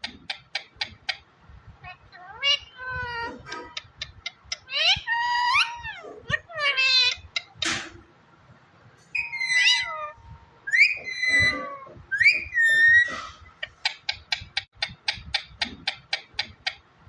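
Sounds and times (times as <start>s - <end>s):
parrot whistling: 9.2s - 13.2s.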